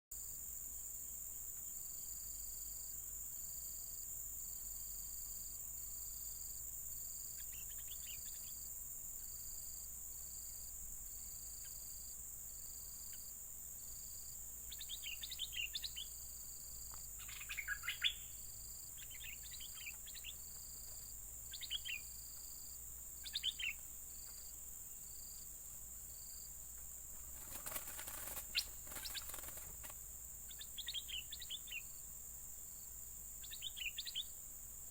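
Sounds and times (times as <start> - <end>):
pulsing insect trill: 0.2 - 34.9
steady high hiss: 0.2 - 34.9
bulbuls chirping: 17.0 - 24.5, 26.7 - 32.0.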